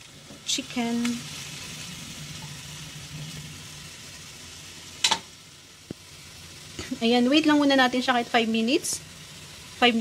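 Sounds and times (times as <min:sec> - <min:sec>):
meat sizzling in a wok: 0:00.0 - 0:10.0.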